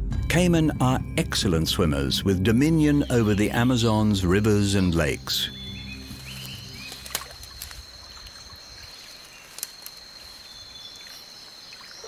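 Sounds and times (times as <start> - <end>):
high-pitched insect drone: 1.9 - 12.0
water trickling and lapping: 5.9 - 12.0
light ticks: 9.5 - 10.0.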